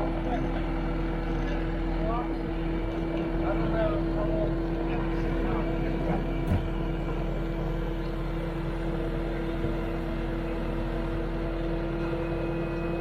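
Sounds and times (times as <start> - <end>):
engine humming steadily: 0.0 - 13.0
brief knock: 6.4 - 6.8.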